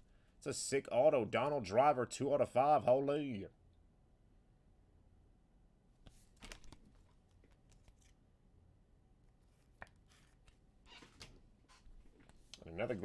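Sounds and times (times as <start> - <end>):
trading cards rustling: 6.1 - 8.2.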